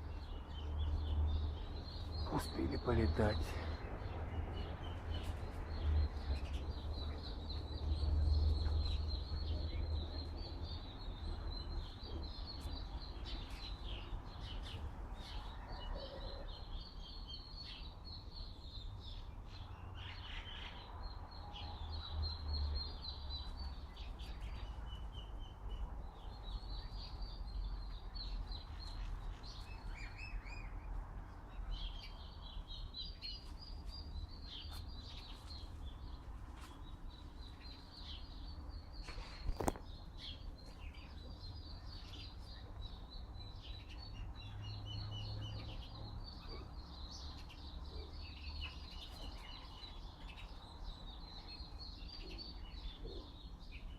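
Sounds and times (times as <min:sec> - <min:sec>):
small birds chirping and singing: 0:00.0 - 0:53.9.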